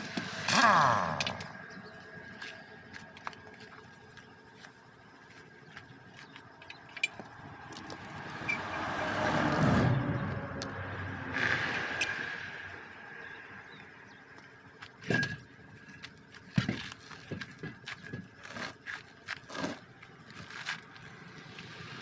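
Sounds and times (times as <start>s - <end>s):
road vehicle passing by: 7.5s - 13.8s.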